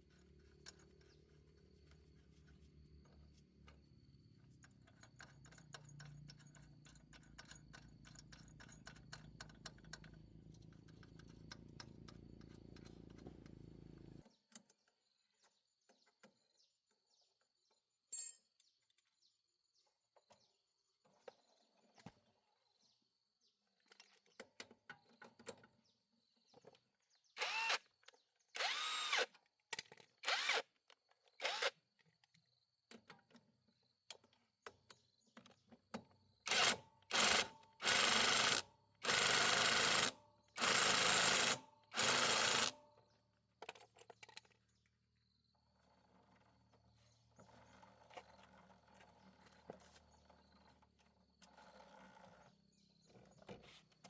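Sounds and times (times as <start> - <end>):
cordless drill driving screws: 27.4 - 27.9, 28.6 - 29.3, 30.2 - 30.7, 31.4 - 31.8, 36.5 - 42.8.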